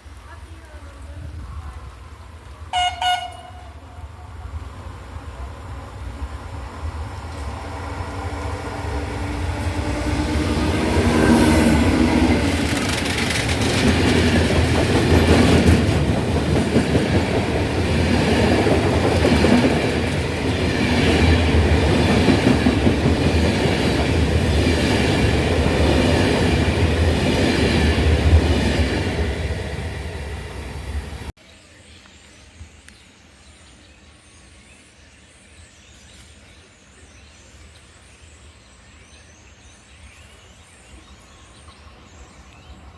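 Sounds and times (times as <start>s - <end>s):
train passing: 0.5s - 31.3s
wheels clattering over rail joints: 12.3s - 25.5s.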